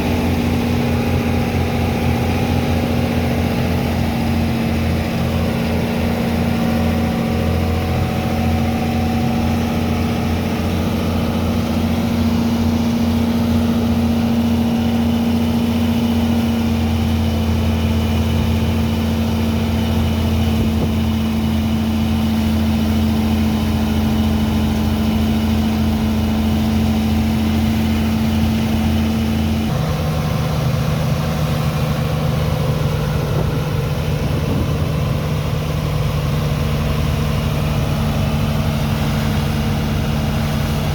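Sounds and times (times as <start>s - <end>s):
heavy pump engine droning: 0.0s - 40.9s.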